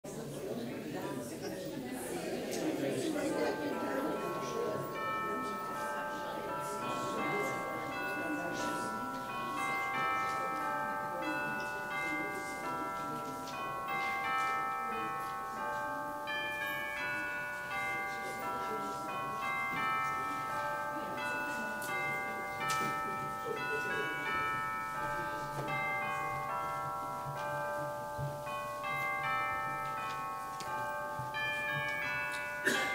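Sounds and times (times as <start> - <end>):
murmur of people talking: 0.0 - 32.9.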